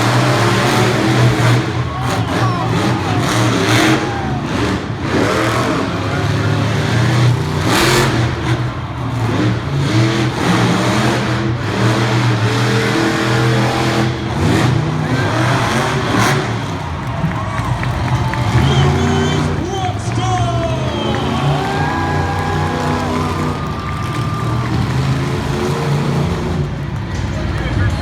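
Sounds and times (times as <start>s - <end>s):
monster truck engines revving: 0.0s - 28.0s.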